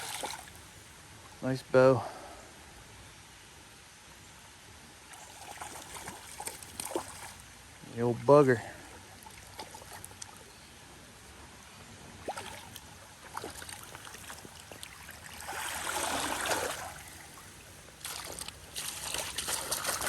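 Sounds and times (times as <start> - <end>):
water splashing: 0.0 - 0.7, 5.1 - 7.5, 8.8 - 10.5, 12.2 - 20.0
creek water running: 0.0 - 2.1, 4.8 - 20.0.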